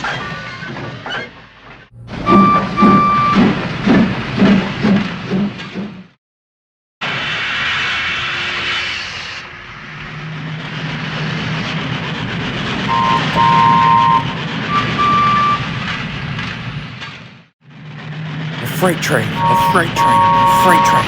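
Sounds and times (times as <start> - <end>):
two-note train whistle: 12.9 - 15.6.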